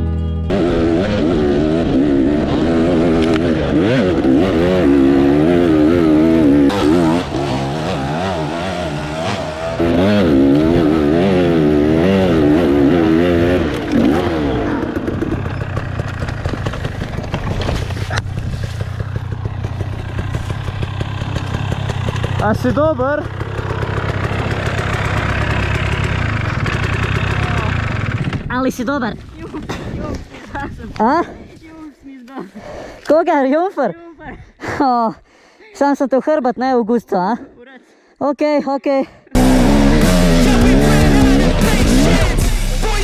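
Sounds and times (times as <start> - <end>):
dirt bike engines revving: 0.5 - 28.6, 39.4 - 43.0.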